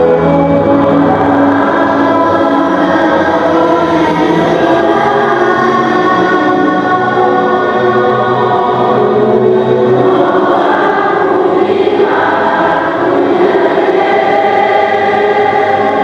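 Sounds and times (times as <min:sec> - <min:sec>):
choir singing sustained chords: 0:00.0 - 0:16.0
orchestral accompaniment: 0:00.0 - 0:16.0.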